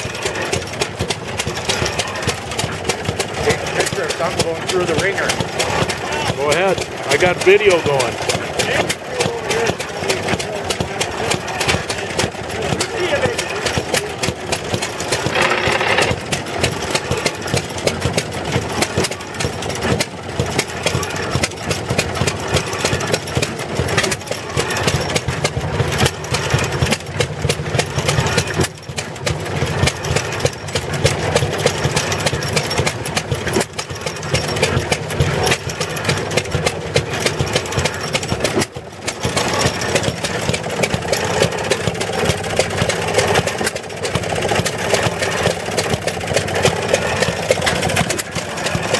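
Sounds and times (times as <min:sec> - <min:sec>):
small gasoline engine running: 0:00.0 - 0:48.9.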